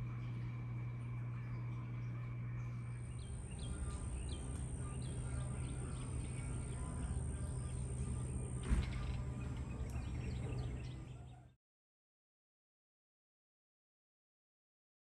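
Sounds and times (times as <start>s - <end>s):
low hum: 0.0s - 11.5s
birds chirping: 0.0s - 11.6s
sharp thump: 8.6s - 9.0s.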